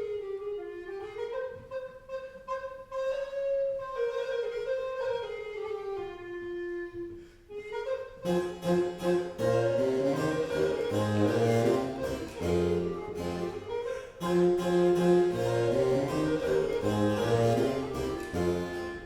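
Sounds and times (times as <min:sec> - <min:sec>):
bassoon: 0:00.0 - 0:19.0
harpsichord: 0:08.2 - 0:19.0.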